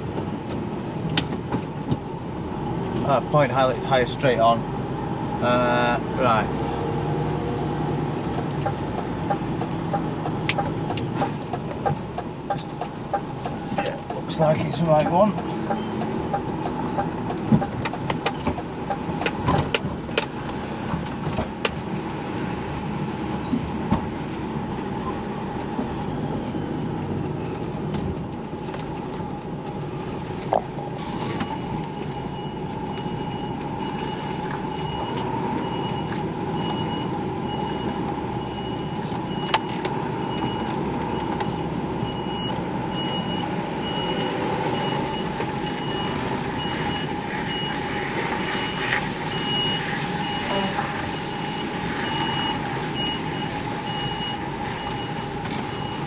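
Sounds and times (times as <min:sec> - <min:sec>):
diesel truck engine running: 0:00.0 - 0:56.0
reversing alarm beeping: 0:48.4 - 0:56.0.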